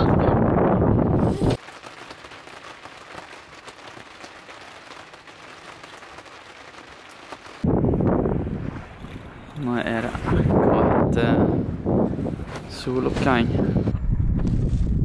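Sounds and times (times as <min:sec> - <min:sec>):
wind rumbling on microphone: 0:00.0 - 0:01.6, 0:07.6 - 0:15.0
rain pattering on windows: 0:01.5 - 0:07.7.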